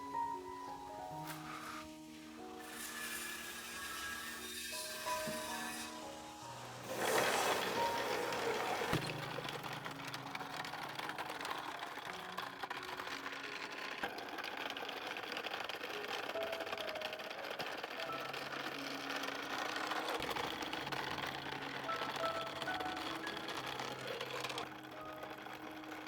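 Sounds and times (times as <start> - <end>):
faint background music: 0.0 - 26.0
rapid clicking rattle: 7.0 - 26.0.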